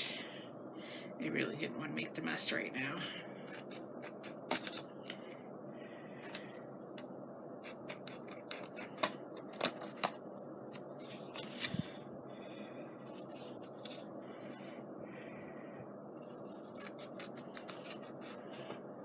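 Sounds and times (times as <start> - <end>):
scissors snipping paper: 7.6 - 10.2, 16.2 - 18.8.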